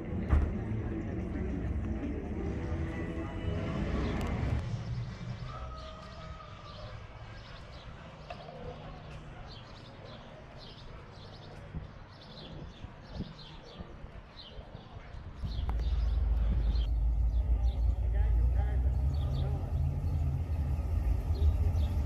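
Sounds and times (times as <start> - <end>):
faint low rumble: 15.4 - 22.0.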